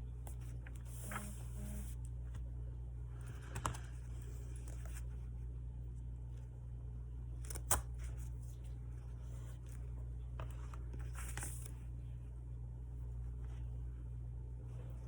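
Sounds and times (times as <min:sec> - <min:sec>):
steady low hum: 0:00.0 - 0:15.0
paper rustling: 0:00.3 - 0:02.0, 0:07.4 - 0:12.0.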